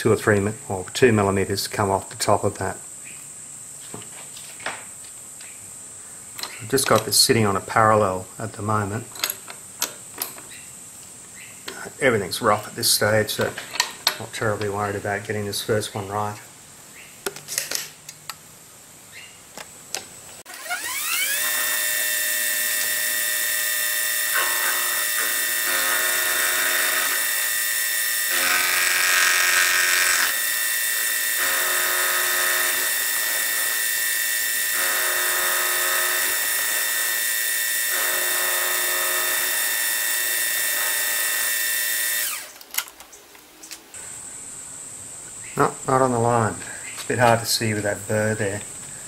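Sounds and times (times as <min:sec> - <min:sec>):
end mill cutting metal: 0:20.5 - 0:42.5
milling machine spindle whine: 0:20.5 - 0:42.5.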